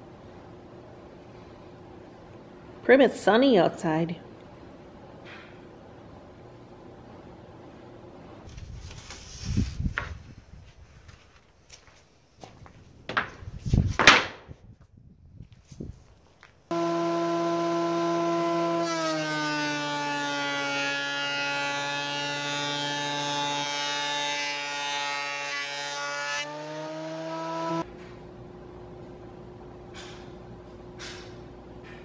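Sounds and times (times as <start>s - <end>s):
machine motor droning hum: 16.7s - 30.8s.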